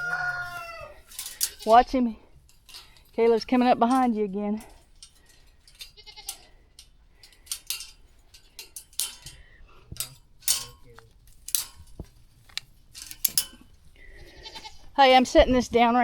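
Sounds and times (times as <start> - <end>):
small metal hardware clinking: 0.0 - 15.7.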